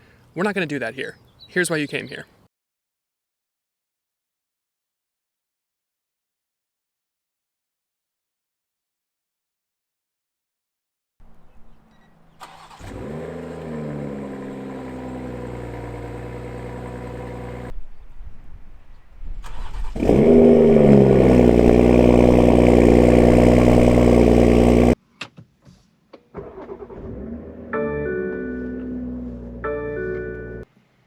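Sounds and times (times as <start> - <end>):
car engine starting and idling: 12.3 - 17.7, 19.4 - 25.0, 26.3 - 29.7.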